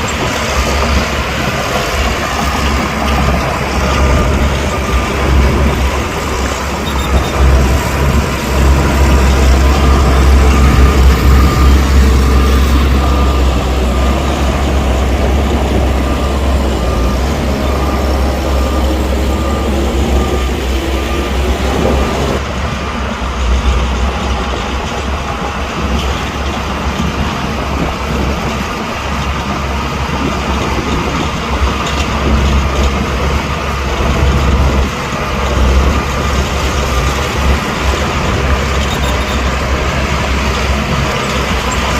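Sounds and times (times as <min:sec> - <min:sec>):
diesel machinery engine rumble: 0:00.0 - 0:41.9
reversing alarm beeping: 0:00.1 - 0:22.4, 0:34.0 - 0:41.9.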